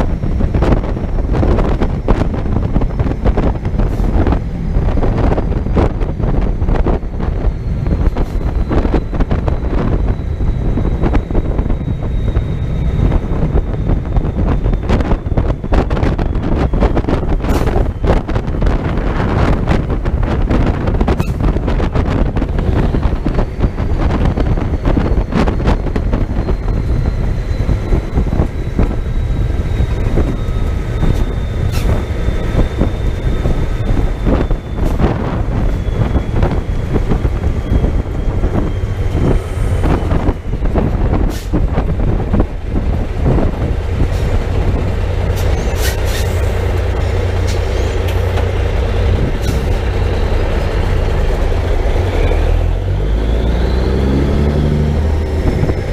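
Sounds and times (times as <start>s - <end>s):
truck engine and road rumble: 0.0s - 55.9s
faint falling whine: 4.2s - 18.9s, 22.4s - 40.7s.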